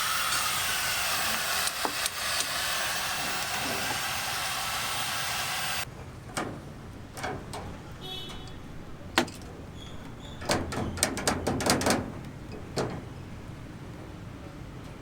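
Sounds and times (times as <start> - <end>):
steady hiss of air: 0.0 - 5.9.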